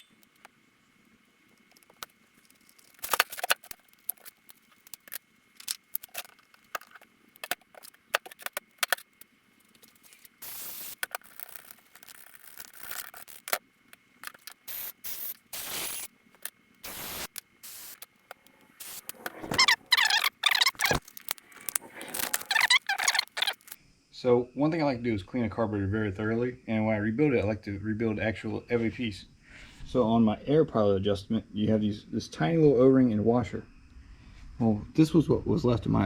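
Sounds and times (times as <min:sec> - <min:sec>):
metal parts and tools rattling: 0:11.0 - 0:13.6.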